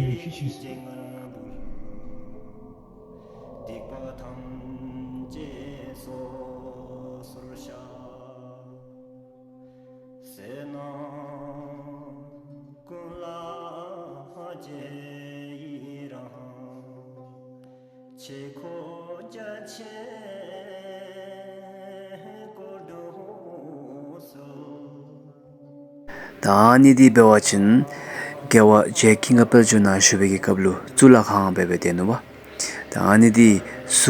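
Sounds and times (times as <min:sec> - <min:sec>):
chanted mantra-like vocal: 0:00.0 - 0:08.2, 0:26.1 - 0:34.0
steady held tones: 0:01.4 - 0:08.2.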